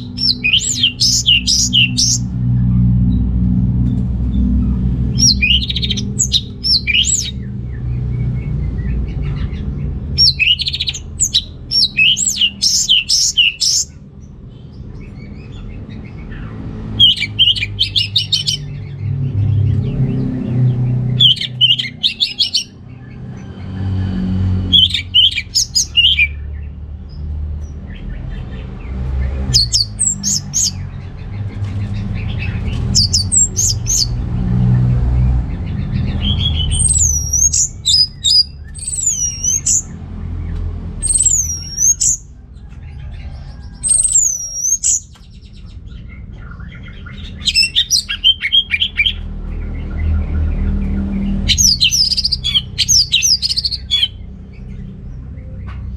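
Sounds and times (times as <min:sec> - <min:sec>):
thrush singing: 0:00.0 - 0:02.3, 0:04.5 - 0:07.5, 0:10.1 - 0:14.0, 0:16.9 - 0:18.7, 0:20.5 - 0:22.8, 0:24.5 - 0:26.4, 0:46.9 - 0:49.3, 0:51.3 - 0:54.2
low rumble: 0:00.0 - 0:55.9.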